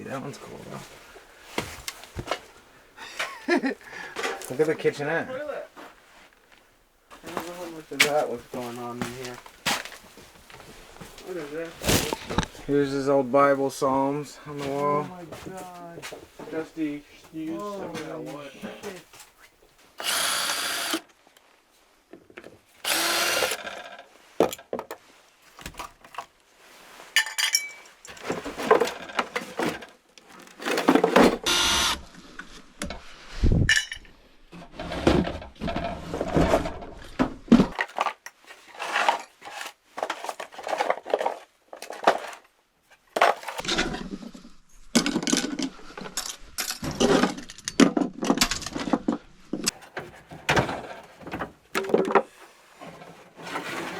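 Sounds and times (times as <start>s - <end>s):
power tool running in bursts: 20.0s - 21.0s, 22.8s - 23.6s
wood and debris crashing: 35.3s - 52.3s.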